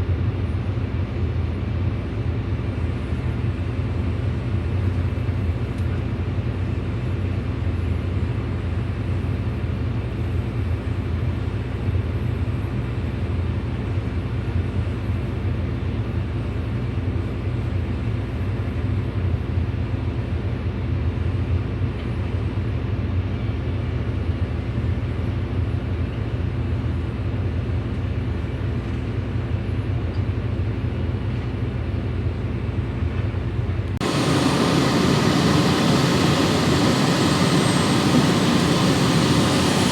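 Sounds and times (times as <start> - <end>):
excavator diesel engine drone: 34.0 - 39.9
louder brighter noise: 34.0 - 39.9.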